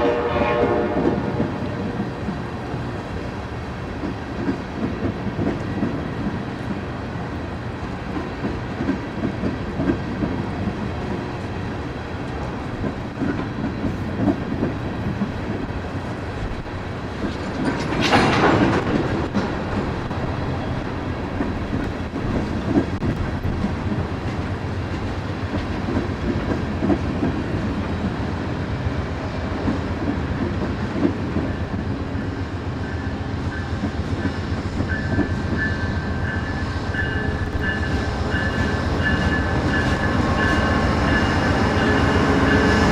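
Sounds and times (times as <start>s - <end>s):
train rumbling: 0.0s - 42.9s
wheels clacking over rail joints: 0.9s - 28.2s, 33.8s - 42.9s.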